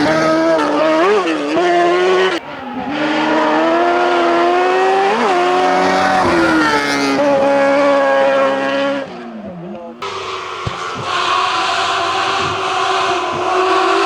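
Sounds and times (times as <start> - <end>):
race car engine accelerating: 0.0 - 14.0.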